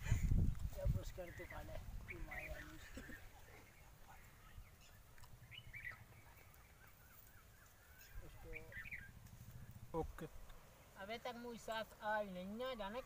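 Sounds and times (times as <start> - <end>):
faint bird chirps: 1.2 - 10.1.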